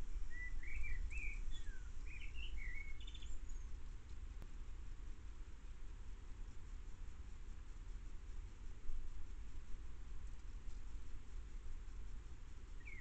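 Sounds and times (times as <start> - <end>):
songbird warbling: 0.0 - 3.8, 12.8 - 13.0
steady low rumble: 0.0 - 12.9.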